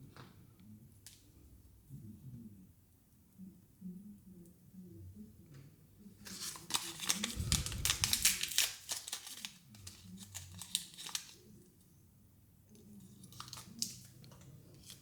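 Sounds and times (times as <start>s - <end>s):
plastic packaging crinkling: 6.2s - 11.4s, 13.2s - 15.0s.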